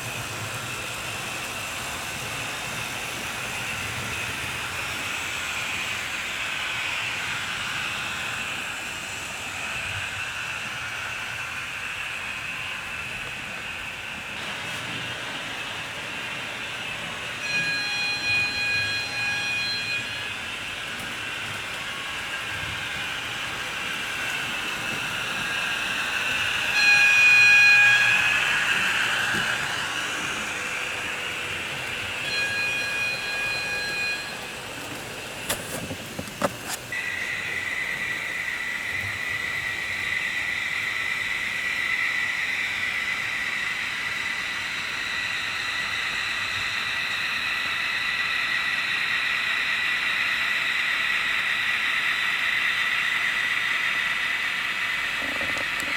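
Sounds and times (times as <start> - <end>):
model train running on track: 0.0 - 55.9
steady high whine: 0.0 - 55.9
model train horn: 16.6 - 39.2, 55.2 - 55.9.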